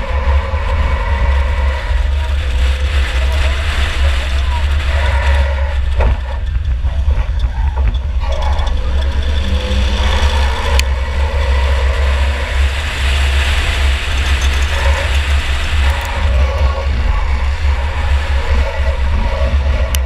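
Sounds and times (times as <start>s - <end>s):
car engine low rumble: 0.0s - 20.0s
road and chassis noise: 0.0s - 20.0s.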